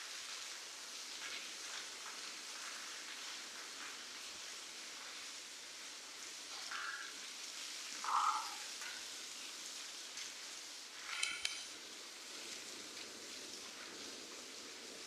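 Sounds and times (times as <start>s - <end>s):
steady rain hissing: 0.0s - 15.0s
animal calls: 8.0s - 8.7s.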